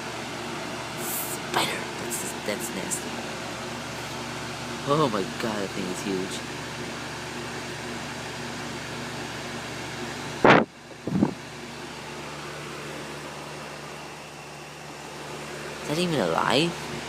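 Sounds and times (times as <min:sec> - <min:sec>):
air conditioner unit humming: 0:00.0 - 0:17.0.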